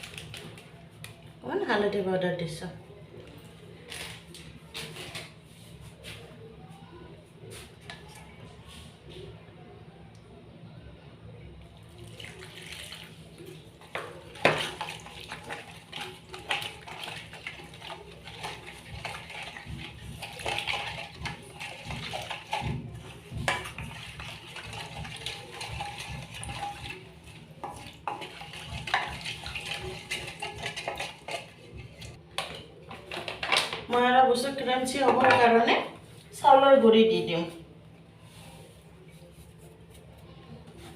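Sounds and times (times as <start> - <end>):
utensils clinking against dishes: 23.4 - 33.8.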